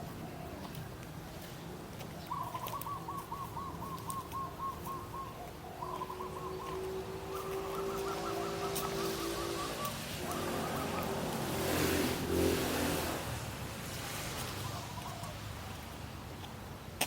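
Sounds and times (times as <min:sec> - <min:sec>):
bird calling repeated notes: 0:02.2 - 0:11.3.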